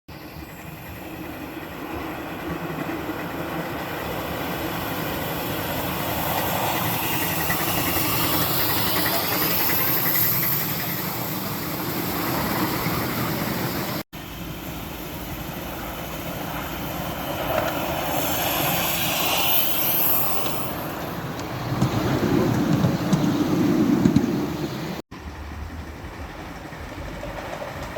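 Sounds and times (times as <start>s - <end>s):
steam hissing: 0.1s - 24.9s
wheels running on rails: 0.1s - 27.9s.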